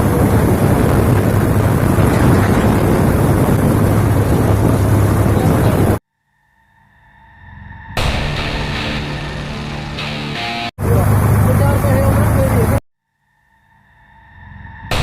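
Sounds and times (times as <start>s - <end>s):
engine low hum: 0.0s - 6.0s, 10.8s - 12.8s
wind rush on microphone: 0.0s - 6.0s.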